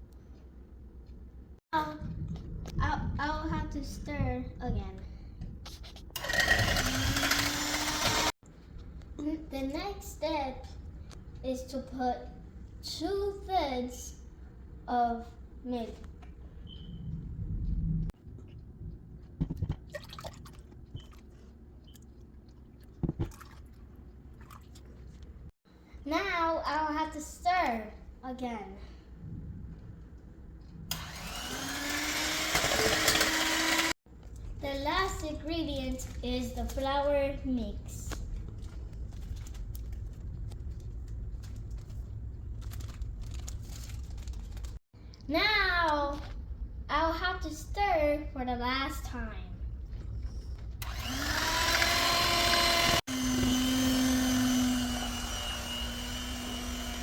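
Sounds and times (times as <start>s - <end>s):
steady low hum: 27.7s - 32.5s.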